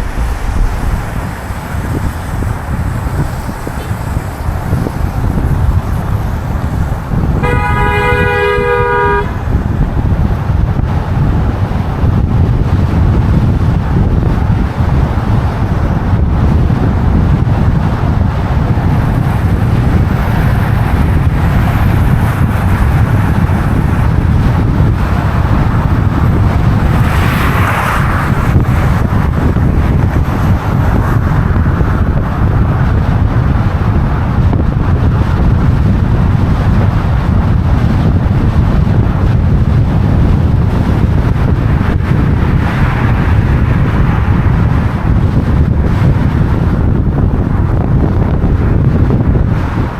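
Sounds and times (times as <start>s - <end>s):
street traffic rumble: 0.0s - 49.9s
car horn honking: 7.3s - 9.6s.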